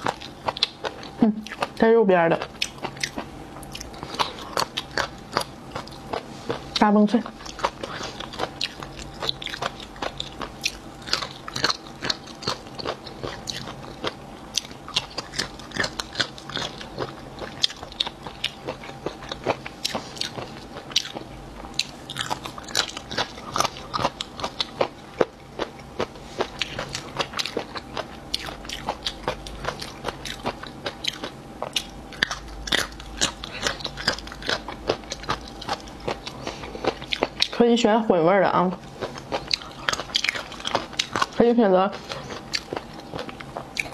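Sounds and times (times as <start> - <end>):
crunching cartilage: 2.4 - 37.6, 38.6 - 41.4.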